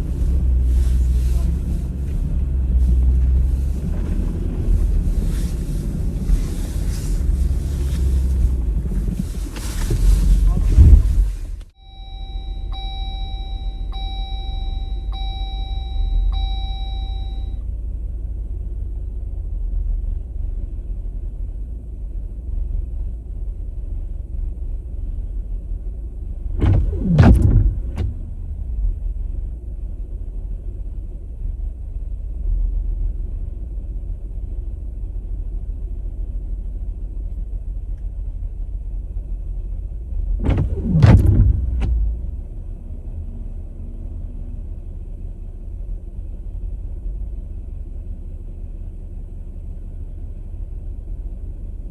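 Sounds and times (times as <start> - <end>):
car engine rumbling: 0.0 - 51.9
repeating electronic chime: 11.8 - 17.6.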